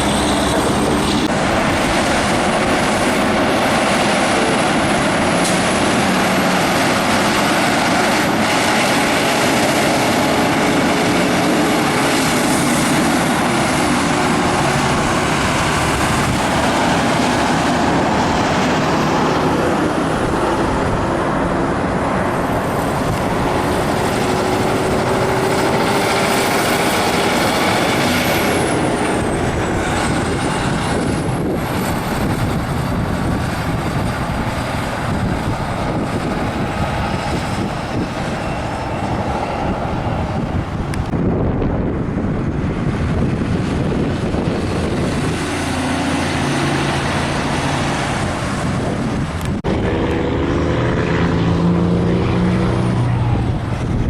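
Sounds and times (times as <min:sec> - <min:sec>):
highway truck traffic roar: 0:00.0 - 0:54.0.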